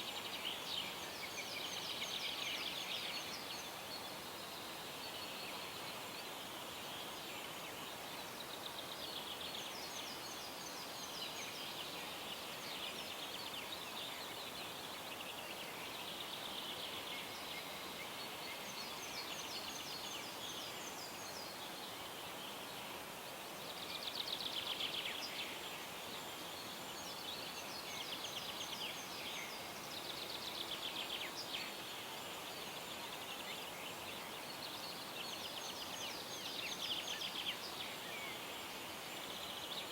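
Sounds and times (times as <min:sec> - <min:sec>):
faint steady hiss: 0:00.0 - 0:39.9
songbirds singing with rapid trills: 0:00.0 - 0:39.9.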